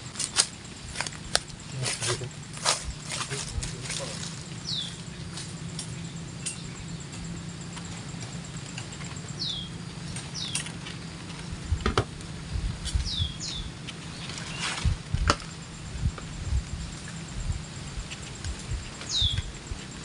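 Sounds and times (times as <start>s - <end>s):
rustling from handling: 0.1s - 5.6s
small bird chirping: 0.6s - 11.7s, 12.6s - 20.0s.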